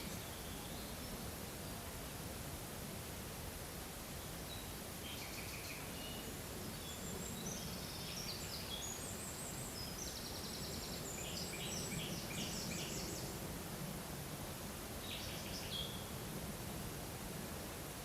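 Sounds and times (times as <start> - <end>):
small birds singing and chirping: 4.5 - 13.4, 15.0 - 16.0.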